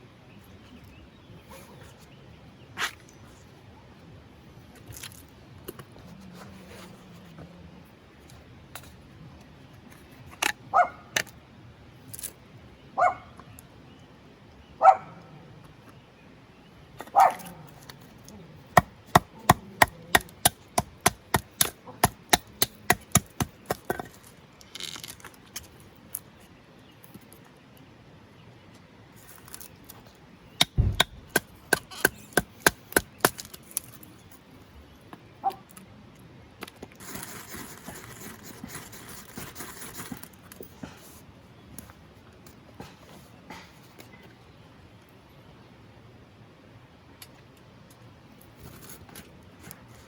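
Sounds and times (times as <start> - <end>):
sharp rapid taps: 30.6 - 33.1
blade knocking on wood: 30.6 - 33.4.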